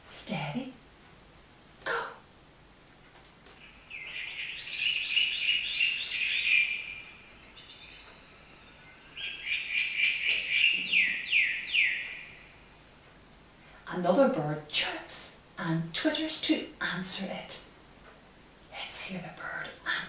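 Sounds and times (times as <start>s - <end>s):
recorded bird chirping from speaker: 3.6s - 12.8s.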